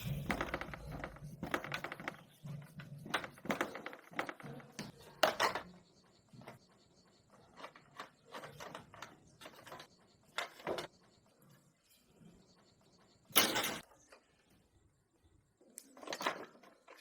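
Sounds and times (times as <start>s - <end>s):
metal parts and tools clinking: 0.0s - 11.0s, 13.2s - 13.9s.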